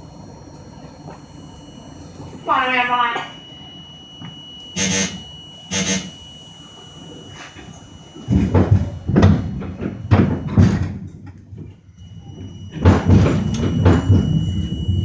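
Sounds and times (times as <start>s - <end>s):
subway sliding doors banging shut: 8.3s - 15.0s.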